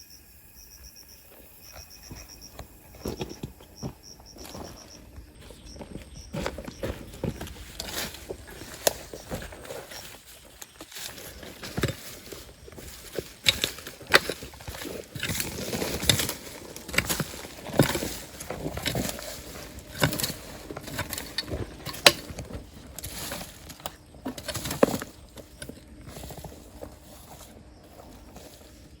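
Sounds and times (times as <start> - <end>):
stones and gravel clacking: 1.7 - 29.0.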